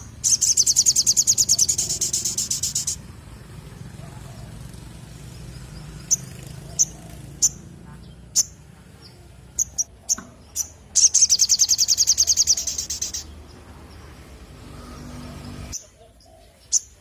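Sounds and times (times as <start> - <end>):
songbird fast trill: 0.0 - 3.1, 5.4 - 13.4
songbird chirps: 0.0 - 17.0.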